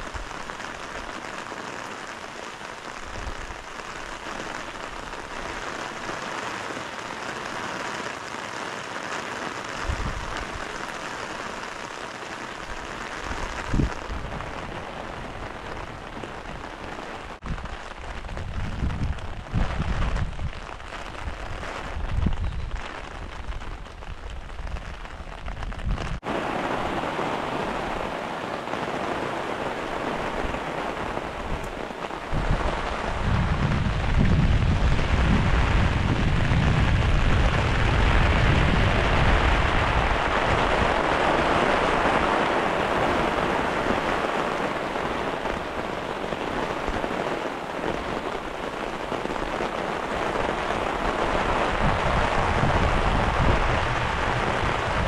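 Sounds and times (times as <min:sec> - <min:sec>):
heavy rain on tent fabric: 0:00.0 - 0:55.0
thunder rumble: 0:12.6 - 0:55.0.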